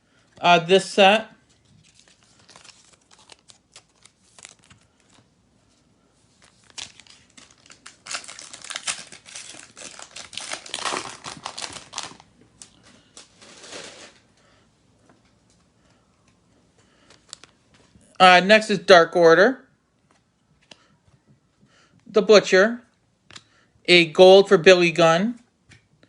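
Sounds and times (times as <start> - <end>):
wrapper crinkling and tearing: 1.5 - 5.3, 6.4 - 14.3.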